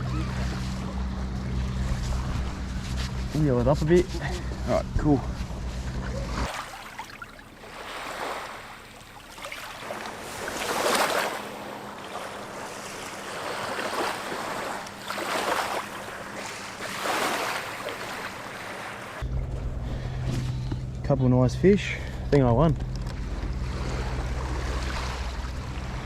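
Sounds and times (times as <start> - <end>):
water washing and splashing: 6.2 - 19.2, 23.5 - 26.0.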